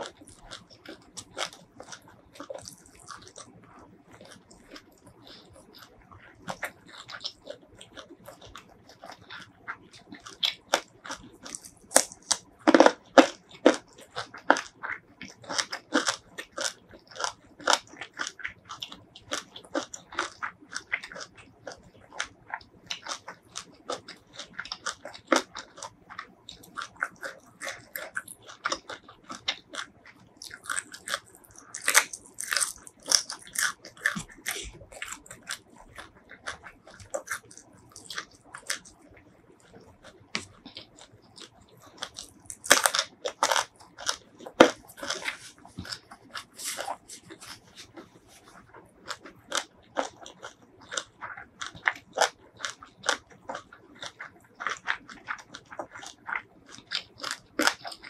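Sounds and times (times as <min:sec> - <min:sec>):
chewing with wet mouth clicks: 0:00.0 - 0:58.0
crisp crunches: 0:26.7 - 0:39.0, 0:40.4 - 0:58.0.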